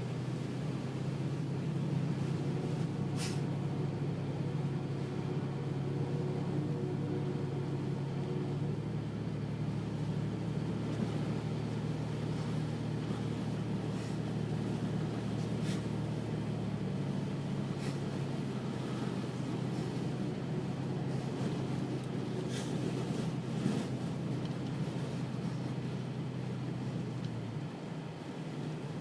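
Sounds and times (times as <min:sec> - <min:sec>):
vehicle engine humming: 0:00.0 - 0:29.0.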